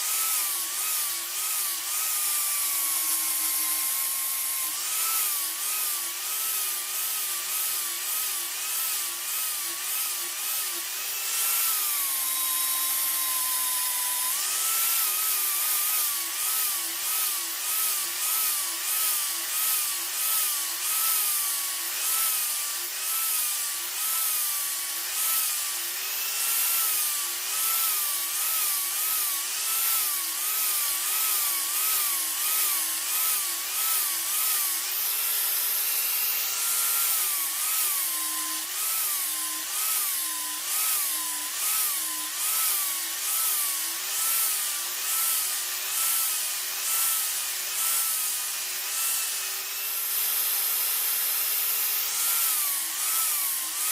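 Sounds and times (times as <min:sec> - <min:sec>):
file scraping steel: 0:00.0 - 0:21.1.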